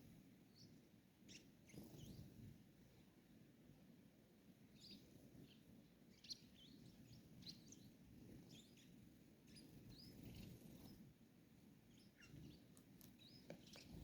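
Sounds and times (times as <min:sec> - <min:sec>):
faint bird chirps: 0:00.5 - 0:02.5, 0:04.7 - 0:11.2, 0:11.8 - 0:14.0.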